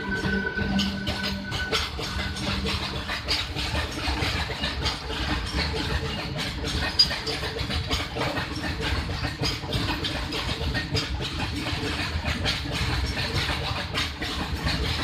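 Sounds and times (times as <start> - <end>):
train rumbling: 0.0 - 7.1
train clatter: 0.0 - 15.0.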